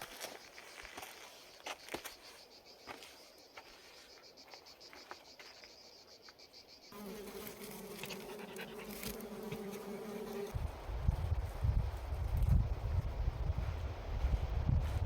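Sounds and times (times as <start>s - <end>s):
insect chirring: 1.6s - 10.2s
flying insect buzz: 6.2s - 10.6s.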